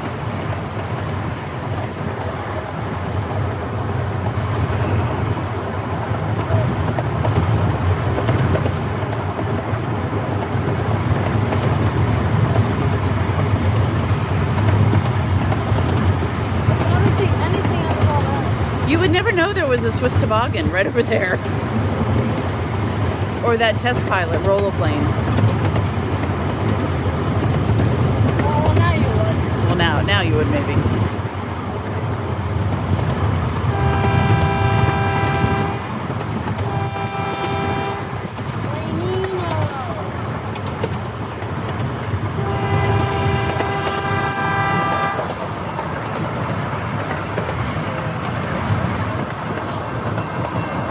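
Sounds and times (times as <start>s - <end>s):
miniature train rumbling on track: 0.0s - 50.9s
train horn chord: 33.7s - 35.9s, 36.7s - 38.2s, 42.4s - 45.3s.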